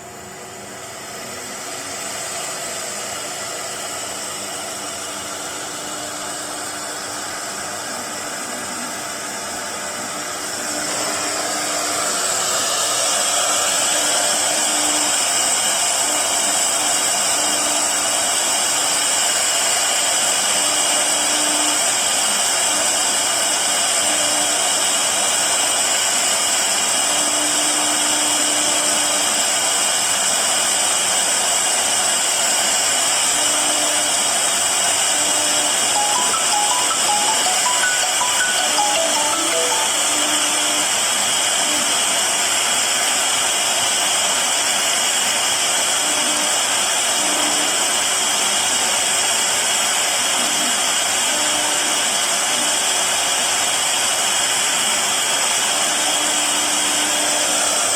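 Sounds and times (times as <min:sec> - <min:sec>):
router spindle whine: 0:00.1 - 0:36.0, 0:45.1 - 0:53.0, 0:54.4 - 0:57.9
machine noise: 0:35.4 - 0:41.0.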